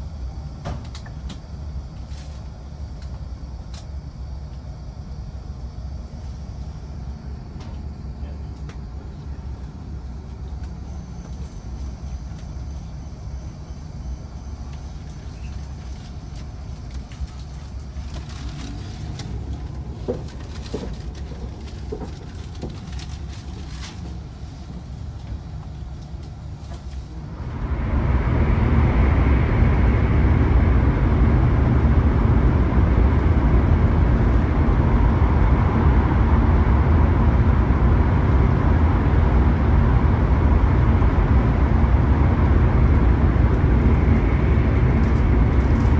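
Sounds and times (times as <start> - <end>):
low steady rumble: 0.0 - 45.9
train running rushing noise: 9.3 - 45.9.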